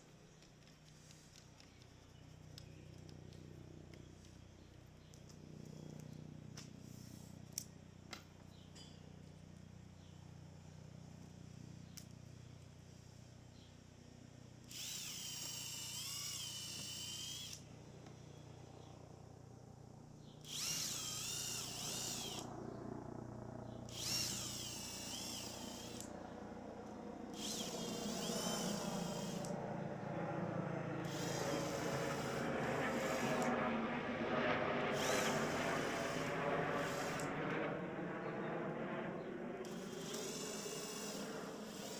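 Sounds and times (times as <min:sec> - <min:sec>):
power drill whining: 0:14.6 - 0:17.7, 0:20.4 - 0:22.5, 0:23.9 - 0:26.1, 0:27.3 - 0:29.6, 0:31.0 - 0:33.5, 0:34.9 - 0:37.3, 0:39.6 - 0:41.9.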